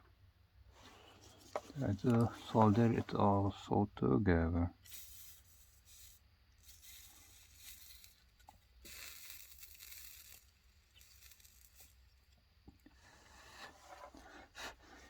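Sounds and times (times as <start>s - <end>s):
low steady hum: 0.0s - 8.7s
soldering iron hissing: 0.7s - 3.3s, 4.8s - 12.4s.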